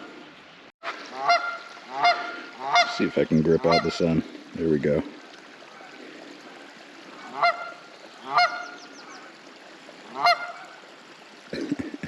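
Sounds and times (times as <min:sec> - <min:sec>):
geese honking: 0:00.8 - 0:04.4, 0:07.1 - 0:09.3, 0:10.1 - 0:10.8.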